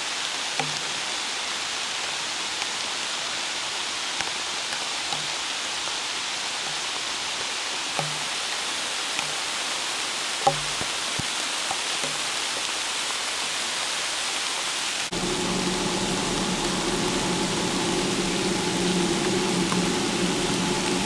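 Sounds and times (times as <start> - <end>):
rain falling on leaves: 0.0 - 21.0
low engine drone: 15.1 - 21.0.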